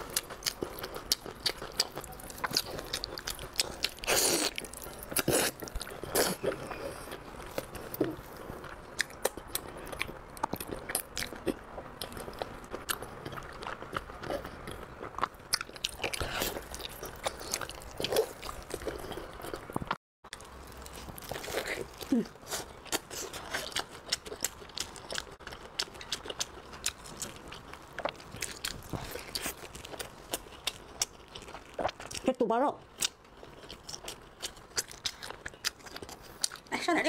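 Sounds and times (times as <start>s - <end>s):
biting and chewing meat: 0.0s - 32.3s, 32.9s - 36.7s.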